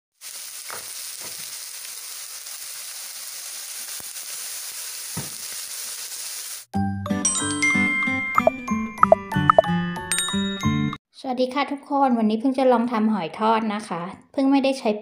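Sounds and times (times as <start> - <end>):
pancake sizzling in hot oil: 0.1 - 6.7
loud oil crackles: 0.2 - 6.7.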